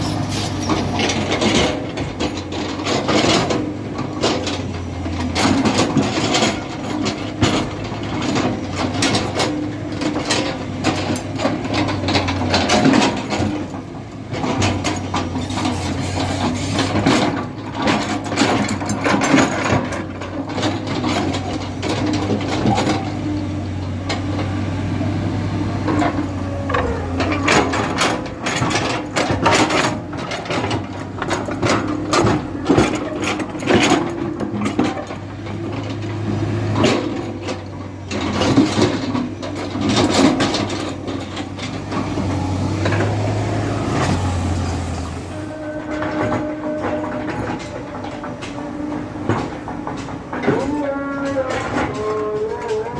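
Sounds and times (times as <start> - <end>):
bucket clanking and scraping: 0.0 - 24.6, 25.8 - 52.9
diesel engine running under load: 0.0 - 52.9.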